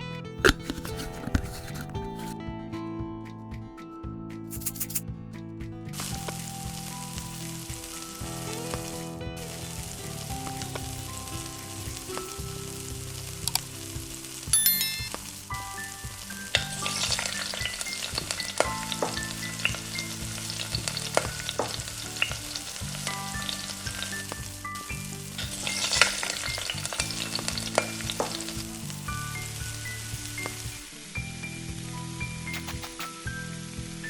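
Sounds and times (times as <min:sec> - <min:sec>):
utensil tapping and scraping pan: 0:00.4 - 0:02.4
roti sizzling in hot oil: 0:15.1 - 0:31.1.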